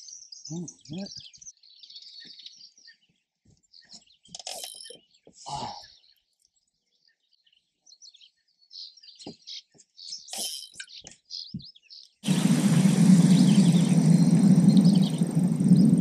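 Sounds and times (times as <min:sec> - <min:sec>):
small birds chirping: 0:00.0 - 0:16.0
loud steady rushing noise: 0:12.2 - 0:16.0.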